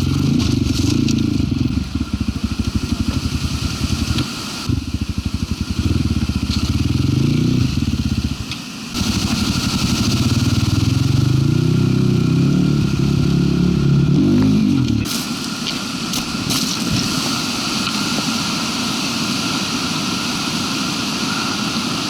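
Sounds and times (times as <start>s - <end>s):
motorcycle engine revving: 0.0s - 15.1s.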